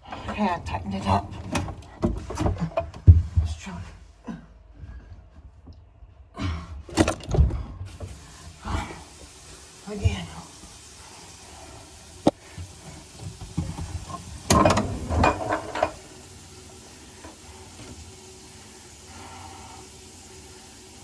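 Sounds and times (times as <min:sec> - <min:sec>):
faucet water splashing into sink: 0:07.9 - 0:21.0.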